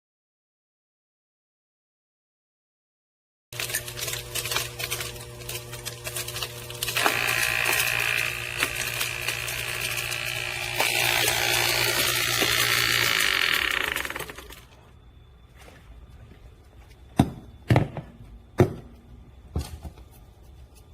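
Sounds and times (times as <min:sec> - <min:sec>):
object rattling in disposer: 0:03.6 - 0:14.8
waste disposer motor hum: 0:03.6 - 0:16.4
high scraping whine: 0:06.5 - 0:15.4.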